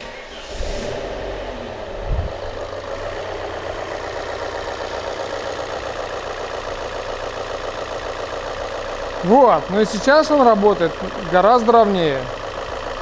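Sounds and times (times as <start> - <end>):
car engine idling: 0.0 - 13.0
low thump: 2.0 - 2.6.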